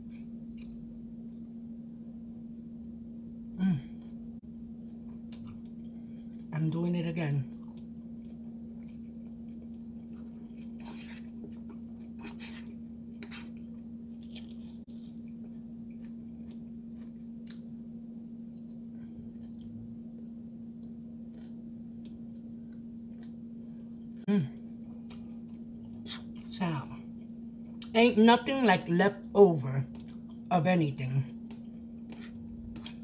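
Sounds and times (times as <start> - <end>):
steady low hum: 0.0 - 33.0
wet chewing of spaghetti: 7.5 - 24.0, 31.4 - 33.0.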